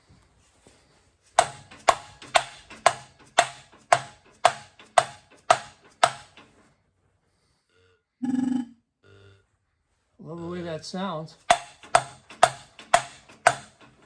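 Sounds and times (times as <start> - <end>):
sharp metallic knocks ringing: 1.4 - 6.4, 11.4 - 14.0.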